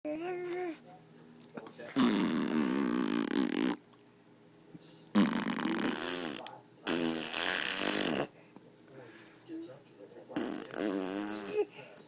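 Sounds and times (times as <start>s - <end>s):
child blowing raspberries: 5.2s - 8.3s.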